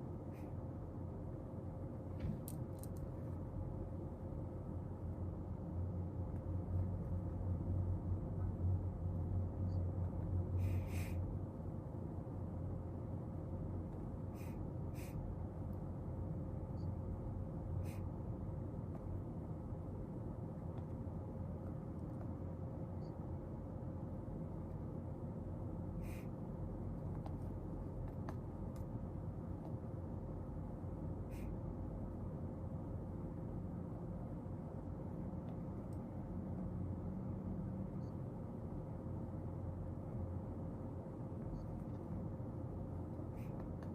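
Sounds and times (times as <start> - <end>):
room hum: 0.0 - 43.9
soft desk clicks and taps: 27.0 - 29.0.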